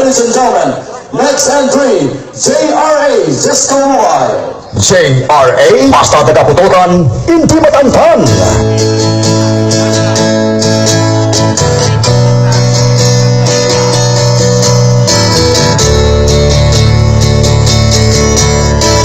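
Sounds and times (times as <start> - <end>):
loud music with deep bass: 8.2 - 19.0.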